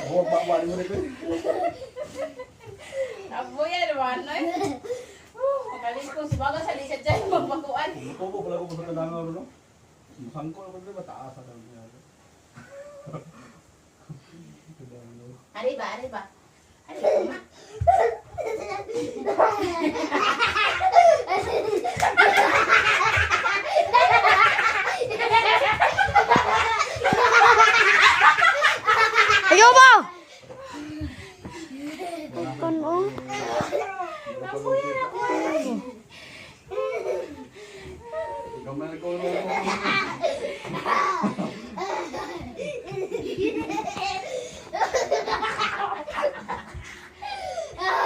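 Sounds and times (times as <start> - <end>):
people laughing: 17.0 - 29.9, 39.0 - 48.0.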